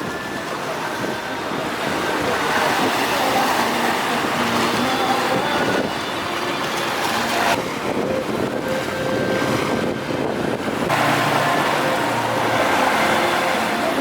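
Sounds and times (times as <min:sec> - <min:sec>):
waves washing in rough sea: 0:00.0 - 0:14.0
wind buffeting microphone: 0:00.0 - 0:14.0.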